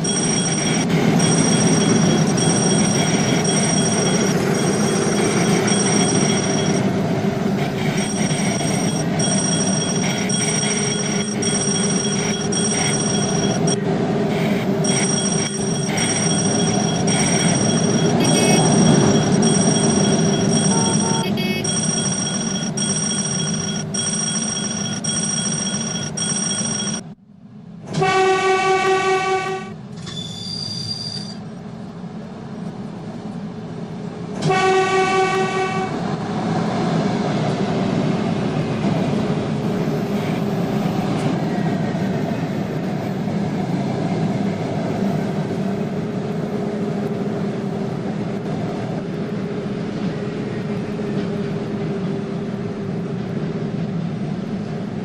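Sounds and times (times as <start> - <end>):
steady high tone: 0.0 - 27.2
train running past: 0.0 - 29.9, 30.6 - 55.0
train horn blasts: 27.9 - 29.8, 34.4 - 36.0.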